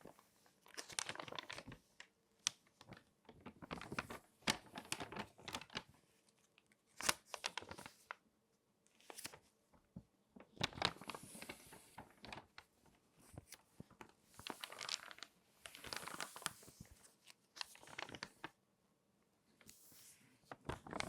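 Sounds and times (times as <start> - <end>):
magazine pages crinkling: 0.6 - 5.9, 7.0 - 8.2, 9.0 - 9.4, 10.4 - 12.8, 13.4 - 18.5, 20.5 - 21.0.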